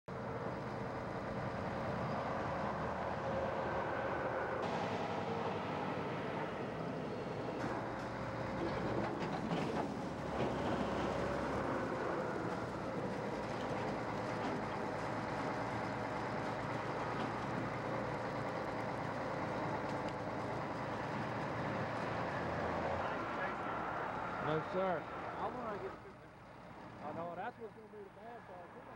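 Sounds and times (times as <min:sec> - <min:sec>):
heavy vehicle engine running: 0:00.1 - 0:28.9.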